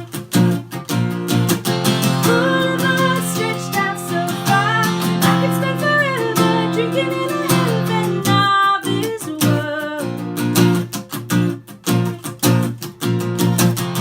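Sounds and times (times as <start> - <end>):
acoustic guitar strumming: 0.0 - 14.0
woman singing: 2.0 - 10.5.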